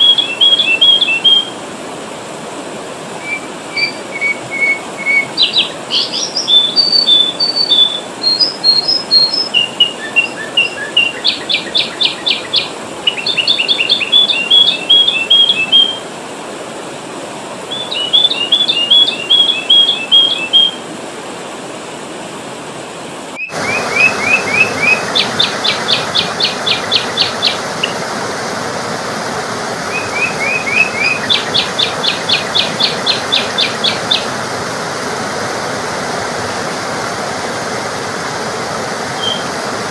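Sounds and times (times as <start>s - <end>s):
bird whistles and rattling trills: 0.0s - 1.5s, 3.2s - 16.0s, 17.7s - 20.8s, 23.4s - 27.9s, 29.9s - 34.3s, 39.2s - 39.5s
steady hiss: 20.7s - 39.9s.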